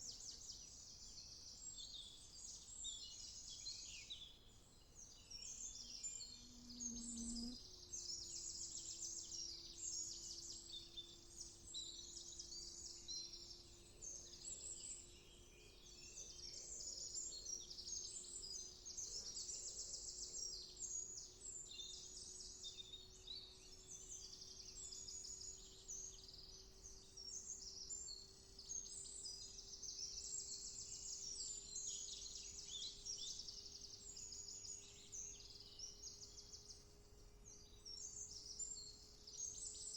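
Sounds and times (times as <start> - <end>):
faint low hum: 5.6 - 12.9.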